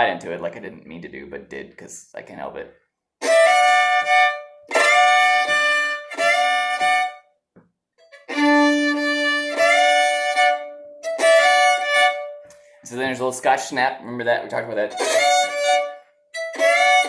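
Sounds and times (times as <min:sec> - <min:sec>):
solo fiddle bowed phrases: 0:03.2 - 0:07.3, 0:08.0 - 0:13.4, 0:14.6 - 0:17.0.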